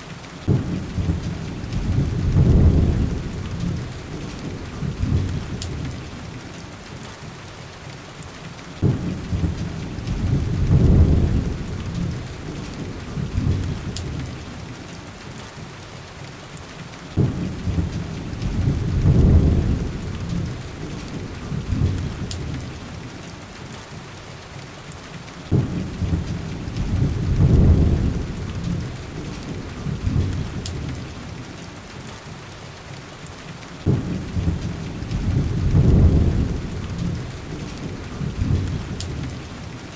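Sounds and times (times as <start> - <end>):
heavy rain: 0.0 - 39.9
rolling thunder: 0.4 - 6.4, 8.8 - 14.4, 17.2 - 22.9, 25.5 - 31.4, 33.8 - 39.7.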